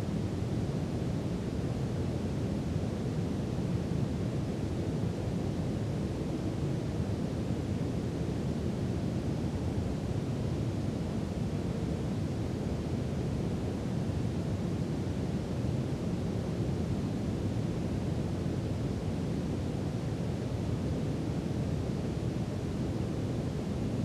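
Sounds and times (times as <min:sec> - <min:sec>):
brown noise hiss: 0:00.0 - 0:24.0.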